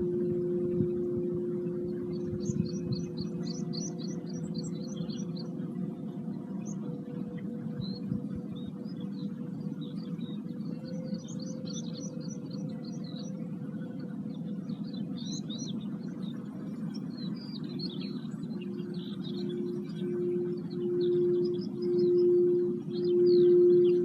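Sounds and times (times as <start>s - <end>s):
singing bowls ringing: 0.0s - 5.8s, 18.6s - 24.0s
small birds chirping: 2.1s - 5.6s, 14.4s - 24.0s.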